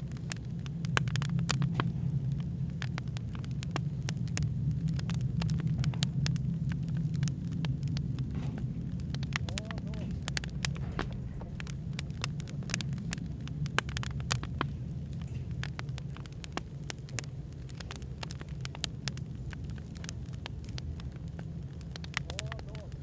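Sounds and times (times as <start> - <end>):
fire pops and snaps: 0.0 - 23.0
low background rumble: 0.0 - 23.0.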